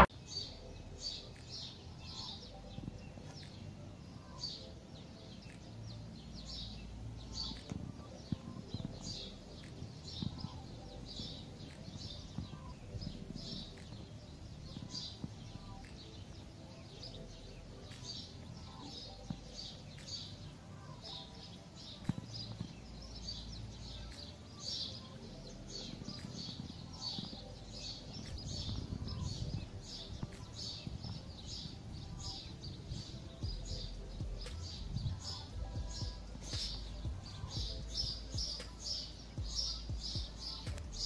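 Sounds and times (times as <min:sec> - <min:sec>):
birds chirping: 0:00.0 - 0:41.0
wind rumble on microphone: 0:25.2 - 0:38.6.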